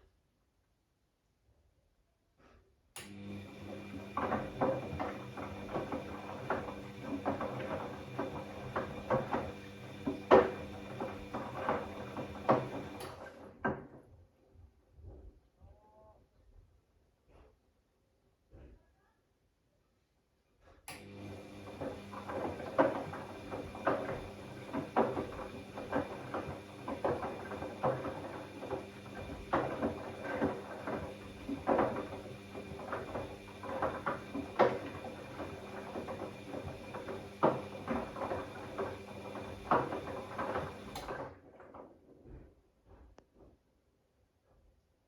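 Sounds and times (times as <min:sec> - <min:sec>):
washing machine hum and hiss: 0:03.0 - 0:13.5, 0:20.9 - 0:41.3.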